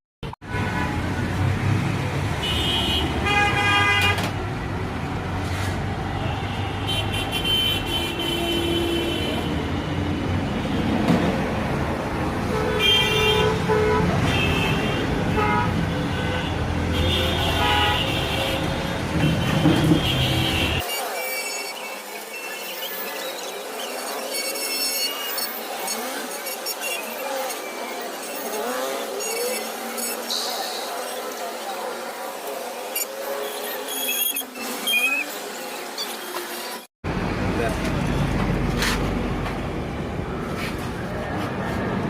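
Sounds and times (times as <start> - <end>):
road traffic: 0.2 - 42.0
vehicle horns honking: 2.4 - 4.3, 6.2 - 9.7, 12.4 - 21.9.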